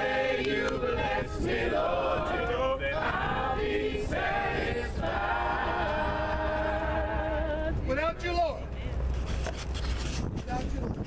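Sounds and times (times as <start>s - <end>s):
choir singing a cappella: 0.0s - 7.8s.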